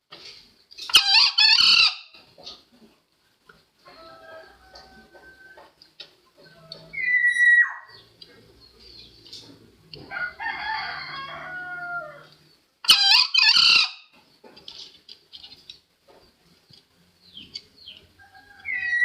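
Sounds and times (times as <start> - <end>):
junglefowl crowing: 0.9 - 2.1, 3.9 - 5.8, 6.5 - 8.0, 10.0 - 14.0, 18.2 - 19.0.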